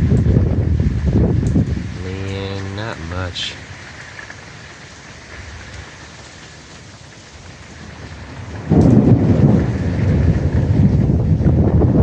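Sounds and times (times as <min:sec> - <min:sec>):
low thunder rumble: 0:00.0 - 0:04.2, 0:07.7 - 0:12.0
rain falling: 0:00.0 - 0:12.0.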